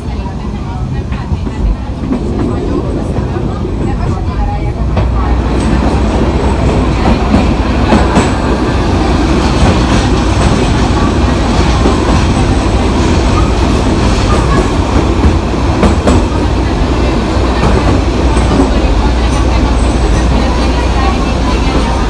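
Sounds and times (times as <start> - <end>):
train rolling on track: 0.0 - 22.0.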